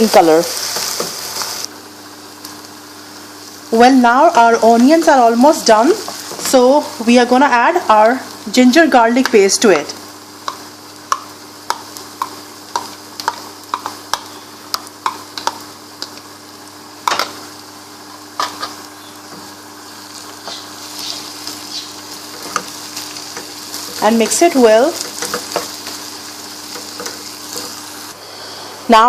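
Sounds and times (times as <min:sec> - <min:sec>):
onions sizzling in hot oil: 0:00.0 - 0:29.0.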